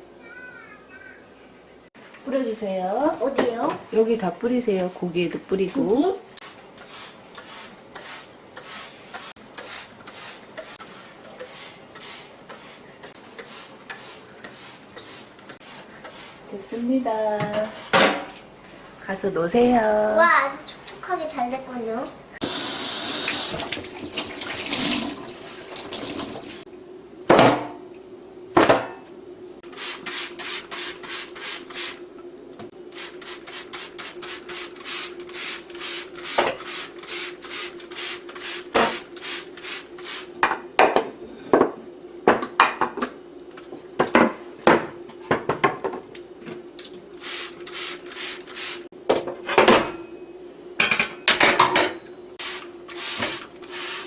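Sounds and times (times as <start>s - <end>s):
dishes being scrubbed: 6.5s - 16.5s, 52.4s - 54.0s
faint steady hum: 9.6s - 48.1s.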